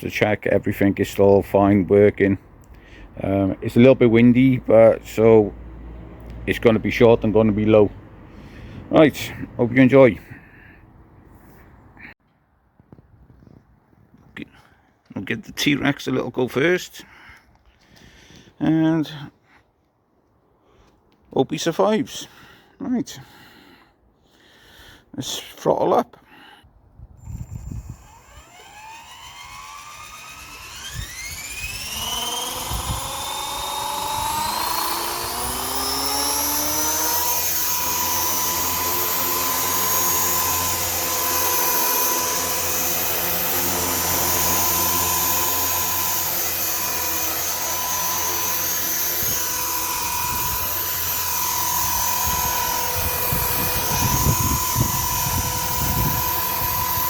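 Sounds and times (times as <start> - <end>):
model helicopter motor whine: 27.2 - 57.0.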